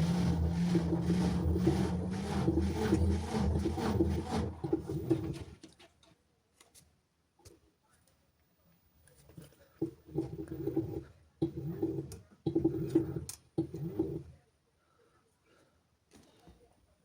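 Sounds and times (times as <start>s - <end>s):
washing machine motor hum: 0.0s - 5.5s, 9.8s - 14.3s.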